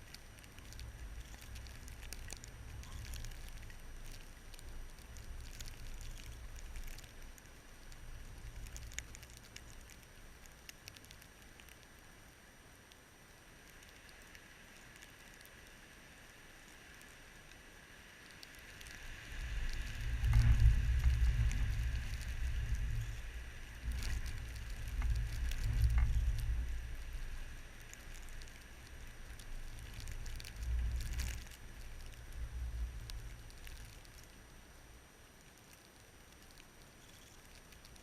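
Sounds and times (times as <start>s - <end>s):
light ticks: 0.0s - 12.1s, 12.8s - 34.4s, 35.4s - 38.0s
faint steady hiss: 0.0s - 38.0s
wind gusting against microphone: 19.1s - 27.7s.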